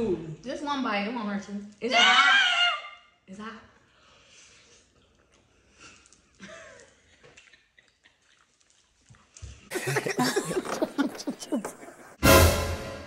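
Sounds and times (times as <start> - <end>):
chewing mouth sounds: 4.8 - 9.7
loud music: 12.2 - 13.0.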